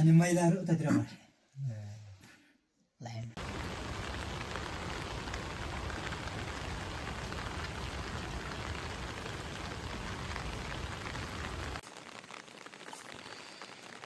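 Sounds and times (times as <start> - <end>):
steady rain falling: 3.4 - 14.0.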